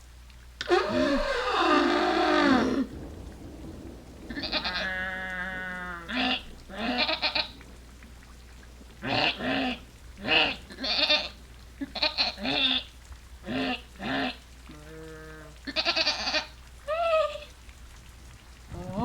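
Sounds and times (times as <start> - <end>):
livestock bleating: 0.7 - 2.9.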